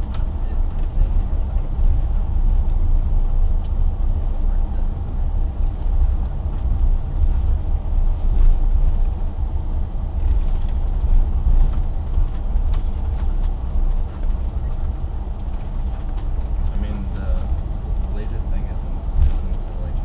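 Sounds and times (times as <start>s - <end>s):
vehicle rumble from inside: 0.0s - 20.0s.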